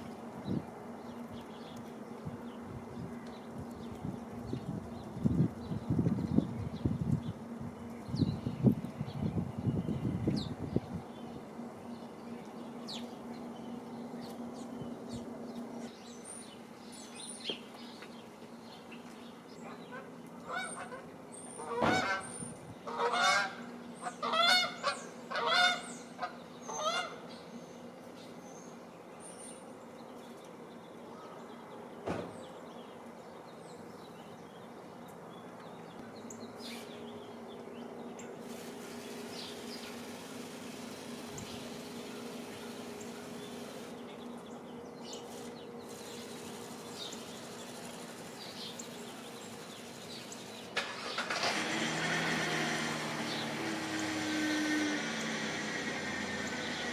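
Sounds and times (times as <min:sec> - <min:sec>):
small birds chirping: 0:00.4 - 0:23.0, 0:23.6 - 0:56.9
geese honking: 0:19.9 - 0:21.0, 0:21.6 - 0:27.2.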